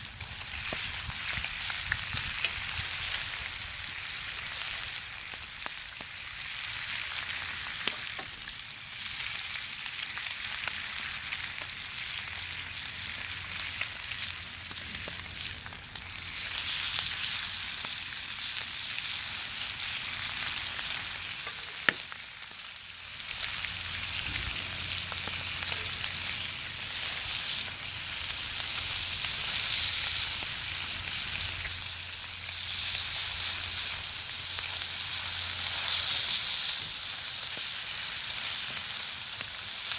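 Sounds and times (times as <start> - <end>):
bacon sizzling: 0.0 - 39.9
fat popping and crackling: 21.4 - 22.2.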